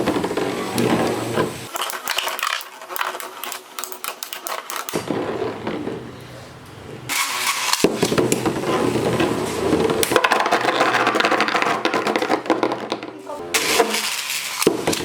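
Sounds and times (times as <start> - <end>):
plastic spinning tops clashing: 0.0 - 5.4, 7.1 - 15.0.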